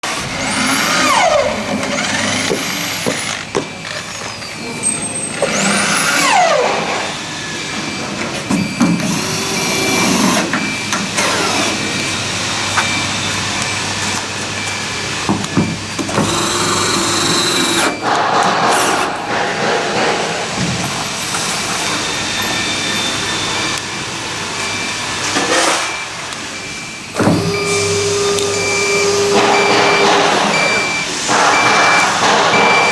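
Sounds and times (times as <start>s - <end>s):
motor whines sweeping in pitch: 0.1s - 3.5s, 5.4s - 8.1s, 9.0s - 14.0s, 21.5s - 32.9s
router machine whine and hum: 0.1s - 4.4s, 5.3s - 7.9s, 9.0s - 26.1s, 27.2s - 32.9s.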